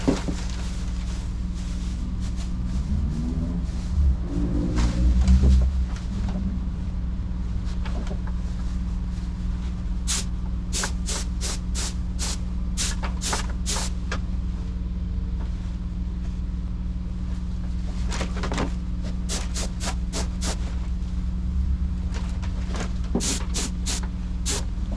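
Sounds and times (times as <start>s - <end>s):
low machine hum: 0.0s - 24.9s
spray gun hissing bursts: 10.1s - 13.9s, 19.3s - 20.6s, 23.2s - 24.7s.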